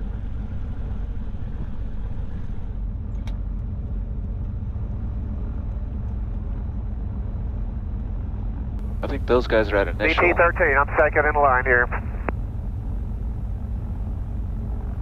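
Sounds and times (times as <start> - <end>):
aircraft engines idling: 0.0 - 15.0.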